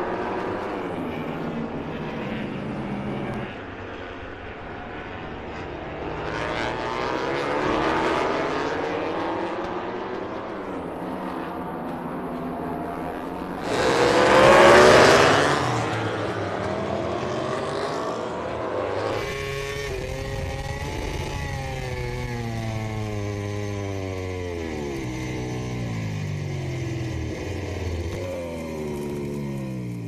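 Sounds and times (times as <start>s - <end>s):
racing motorcycles passing: 0.0s - 30.0s
motorcycle engines shifting gears: 5.3s - 30.0s.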